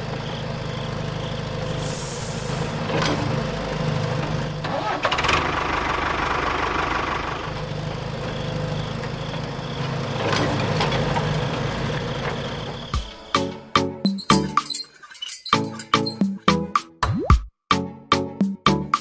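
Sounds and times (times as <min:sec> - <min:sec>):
sharp clinks: 0:14.1 - 0:16.4.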